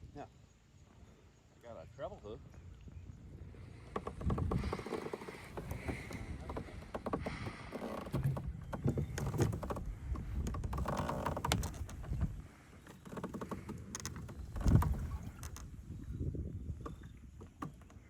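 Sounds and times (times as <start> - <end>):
low uneven rumble: 1.0 - 12.8
clicks and knocks of kayak gear: 3.8 - 18.0.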